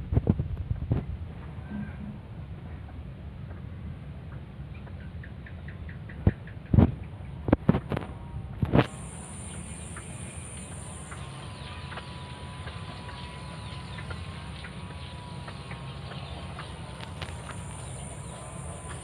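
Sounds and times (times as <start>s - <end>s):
high-pitched insect drone: 8.8s - 19.0s.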